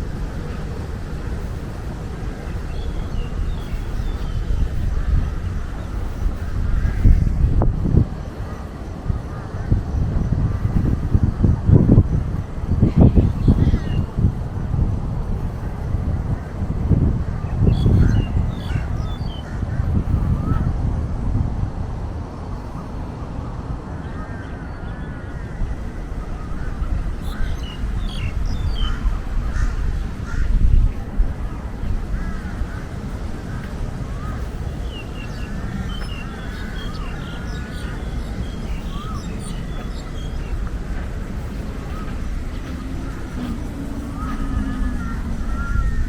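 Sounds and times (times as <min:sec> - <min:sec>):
birds calling: 0:00.0 - 0:14.4, 0:15.3 - 0:20.7, 0:24.0 - 0:46.0
low outdoor rumble: 0:00.0 - 0:46.0
higher bird chirps: 0:25.9 - 0:46.0.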